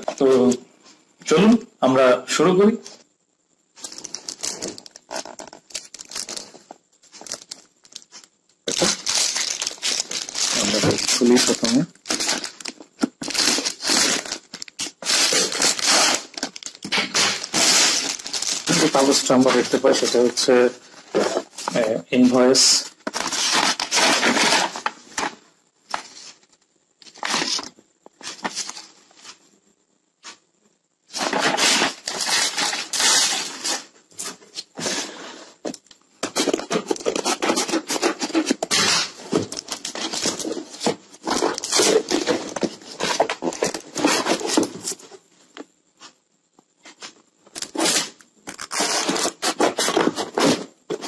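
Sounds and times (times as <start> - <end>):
packaging crinkling and tearing: 3.8 - 20.5, 23.0 - 26.1, 27.0 - 28.9, 31.1 - 33.9, 36.2 - 45.0, 47.5 - 50.6.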